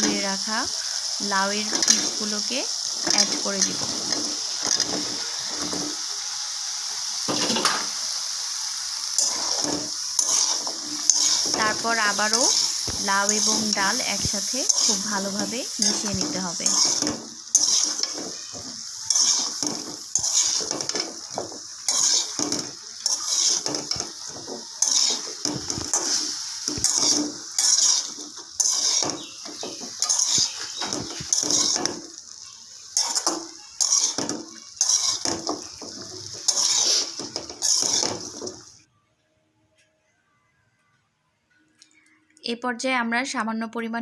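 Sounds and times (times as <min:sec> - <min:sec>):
food frying sizzle: 0:00.0 - 0:38.9
utensil scraping a pan: 0:09.2 - 0:32.0, 0:33.0 - 0:38.5.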